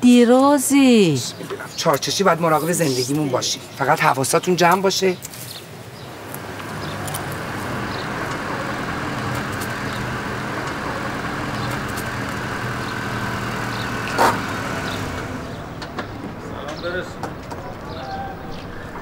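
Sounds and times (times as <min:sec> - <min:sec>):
car engine running: 0:06.2 - 0:17.9.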